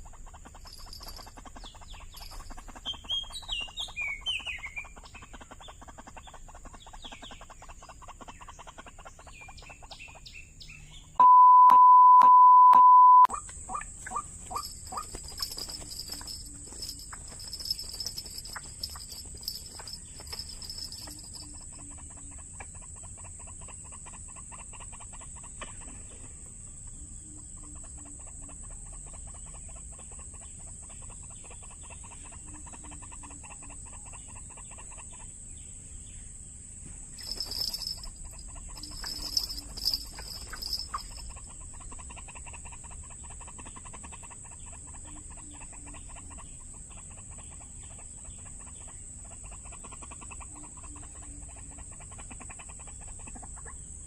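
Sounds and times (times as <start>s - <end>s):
waterhen clucking calls: 13.3s - 25.7s.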